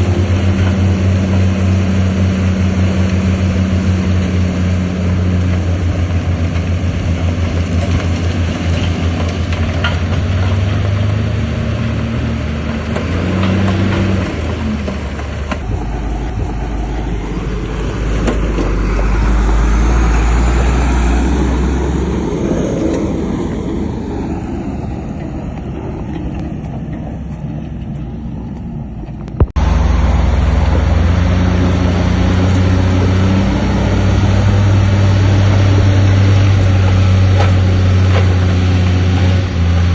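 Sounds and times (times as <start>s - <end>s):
deep engine rumble: 0.0s - 39.9s
heavy diesel engines running: 0.0s - 39.9s.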